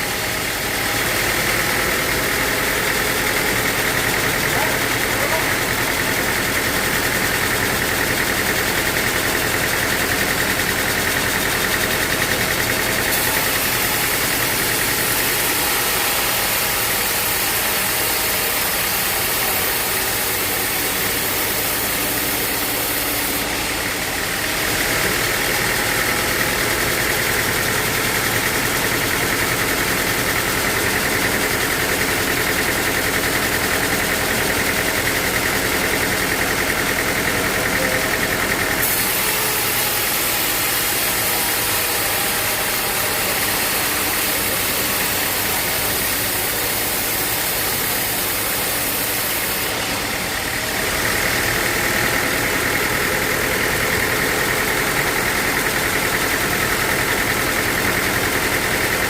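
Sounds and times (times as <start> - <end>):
sawmill saw running: 0.0 - 59.0.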